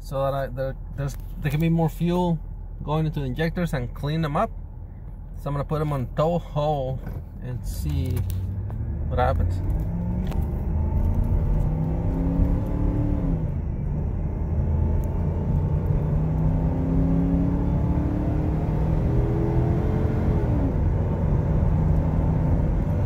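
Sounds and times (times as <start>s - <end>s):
engine revving under acceleration: 7.0s - 23.0s.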